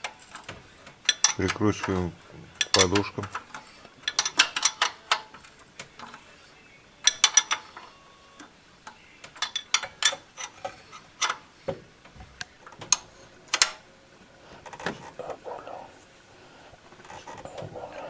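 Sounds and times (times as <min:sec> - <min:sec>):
hand tools clicking on metal: 0:00.0 - 0:06.4, 0:07.0 - 0:13.8.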